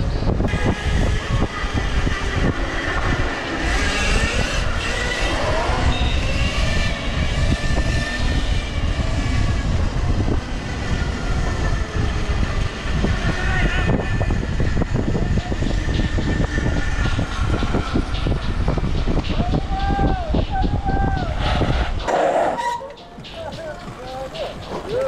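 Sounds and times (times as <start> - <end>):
wind rumbling on microphone: 0.0 - 25.0
bike rattling over road: 11.6 - 25.0.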